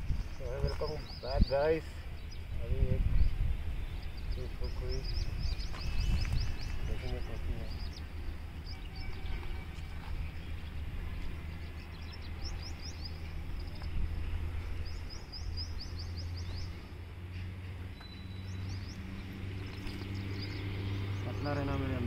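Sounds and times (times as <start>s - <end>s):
low outdoor rumble: 0.0s - 22.0s
small birds chirping: 0.0s - 22.0s.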